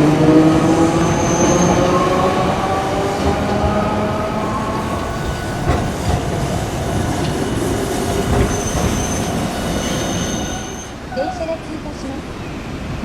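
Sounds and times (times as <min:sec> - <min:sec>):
streetcar wheels rumbling on track: 0:00.0 - 0:13.0
high wheel squeal: 0:01.0 - 0:02.1, 0:07.7 - 0:11.3.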